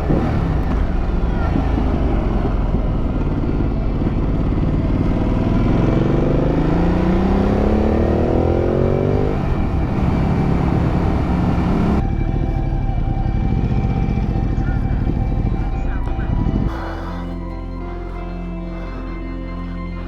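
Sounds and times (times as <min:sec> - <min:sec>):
wind and road rush: 0:00.0 - 0:17.2
motorcycle engine accelerating: 0:00.0 - 0:20.0.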